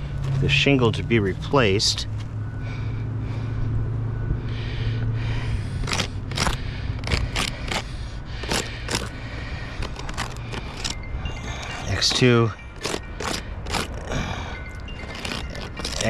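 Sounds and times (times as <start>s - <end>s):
steady low hum: 0.0s - 16.0s
marker scratching on shingle: 5.7s - 14.1s, 15.0s - 16.0s.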